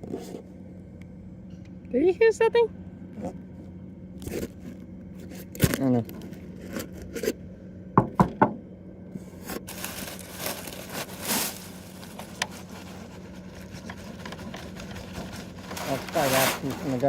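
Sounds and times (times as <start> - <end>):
sharp knocks on gutter: 8.0 - 8.6
scraping and rustling: 9.4 - 17.0.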